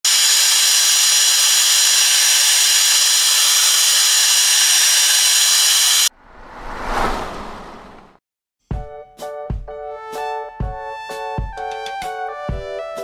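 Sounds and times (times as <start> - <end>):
short whoosh: 6.1 - 8.2.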